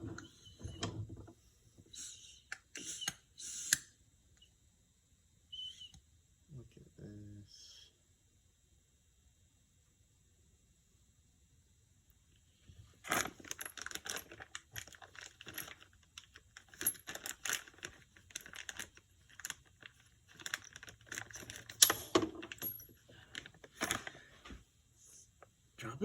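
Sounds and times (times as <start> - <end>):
metal parts clinking: 13.0 - 24.1.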